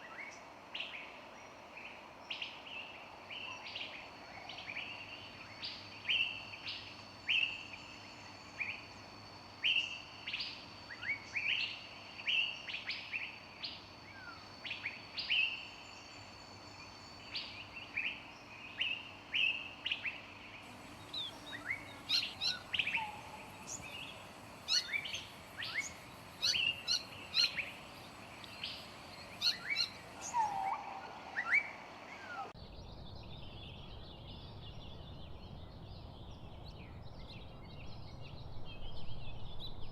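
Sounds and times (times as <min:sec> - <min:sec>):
low steady outdoor hiss: 0:00.0 - 0:39.9
songbirds chirping: 0:00.0 - 0:39.9.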